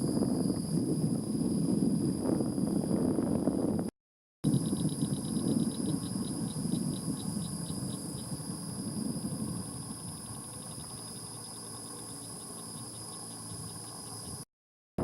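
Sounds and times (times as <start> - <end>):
insect high drone: 0.0 - 3.6, 4.5 - 14.5
insect short high chirps: 4.5 - 14.4.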